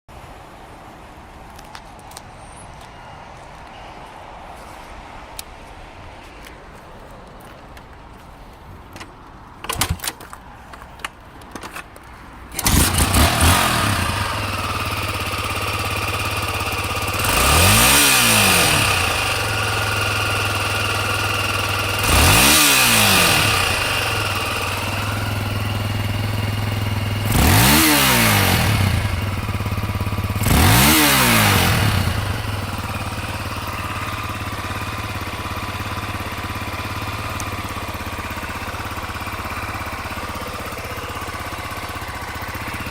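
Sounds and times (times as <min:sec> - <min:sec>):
motorcycle engine idling and revving: 0:10.6 - 0:42.9
motorcycle engine starting: 0:12.5 - 0:42.9.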